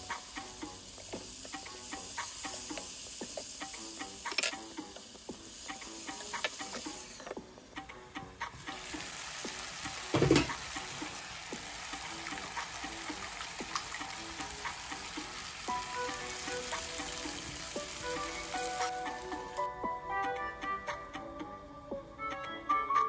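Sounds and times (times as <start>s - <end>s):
potatoes sizzling in a pan: 0.0s - 19.7s
soft background music: 0.0s - 23.0s
knock on pan: 10.0s - 10.9s.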